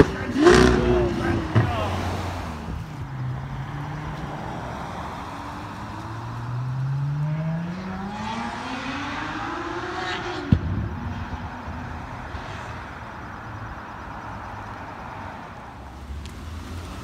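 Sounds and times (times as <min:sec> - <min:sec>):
exhaust crack: 0:00.0 - 0:03.1, 0:09.4 - 0:13.0
car engine accelerating: 0:00.0 - 0:17.0.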